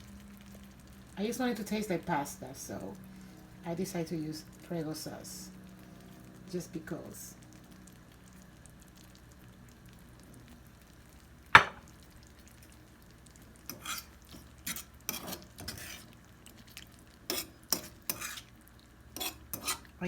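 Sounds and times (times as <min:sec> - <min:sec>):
utensil knocking on pan: 0:11.6 - 0:11.9
utensil stirring food in pan: 0:11.8 - 0:20.0.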